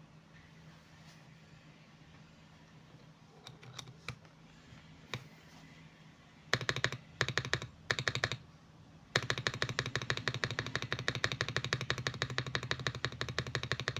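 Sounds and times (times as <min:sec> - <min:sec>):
mechanical keyboard keystrokes: 0:03.4 - 0:04.2, 0:06.5 - 0:08.4, 0:09.2 - 0:13.9.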